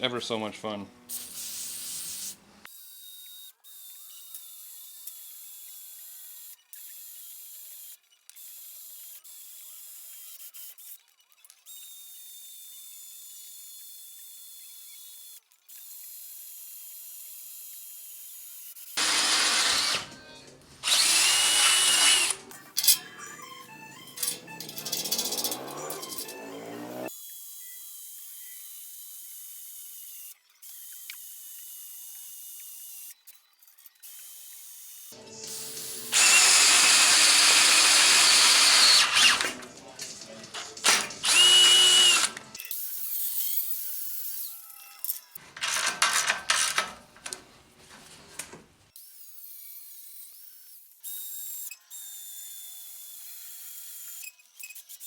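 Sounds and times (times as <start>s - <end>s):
drill bit squealing: 19.0s - 20.0s, 20.8s - 22.4s, 36.1s - 39.5s, 41.2s - 42.4s
power drill boring into steel: 19.0s - 20.1s, 20.8s - 23.0s, 35.5s - 39.6s, 40.8s - 42.4s
music: 22.4s - 27.2s, 35.1s - 36.2s.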